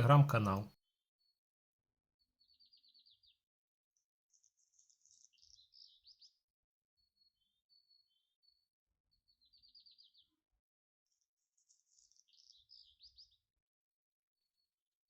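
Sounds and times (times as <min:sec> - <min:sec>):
songbird singing: 0:00.0 - 0:00.7, 0:02.4 - 0:03.4, 0:04.3 - 0:06.4, 0:07.0 - 0:10.4, 0:11.6 - 0:13.5.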